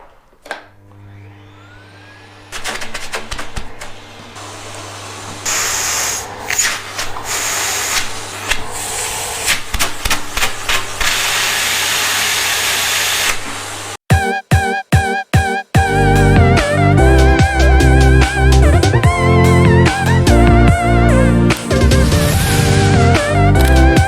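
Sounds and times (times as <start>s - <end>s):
music: 14.1s - 24.0s.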